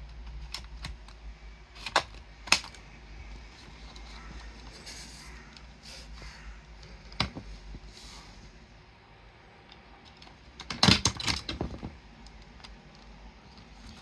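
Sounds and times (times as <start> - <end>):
hard plastic clicks and rattles: 9.7 - 14.0.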